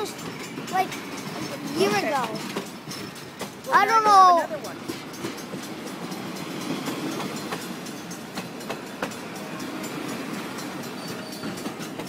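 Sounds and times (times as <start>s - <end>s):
train cars rolling rumble: 0.0s - 12.0s.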